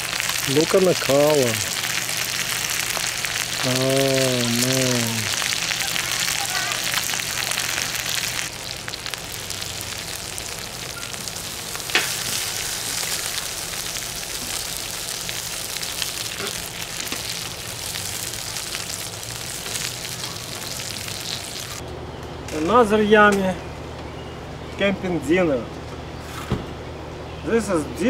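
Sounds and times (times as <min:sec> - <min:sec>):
food sizzling on a griddle: 0:00.0 - 0:21.8.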